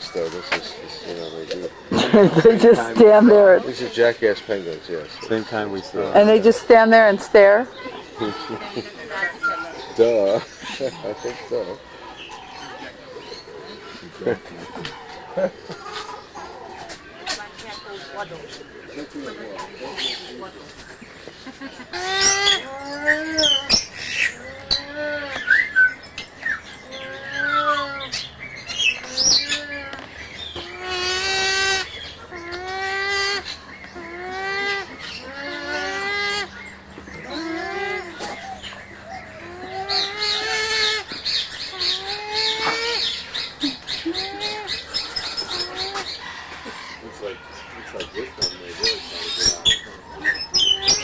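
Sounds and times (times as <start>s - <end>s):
penguins braying: 0.1s - 20.3s, 30.6s - 36.6s.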